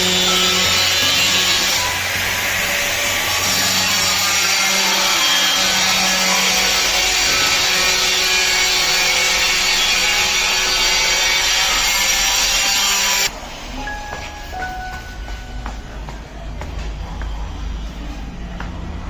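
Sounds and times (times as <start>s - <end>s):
power tool working wood: 0.0s - 13.3s.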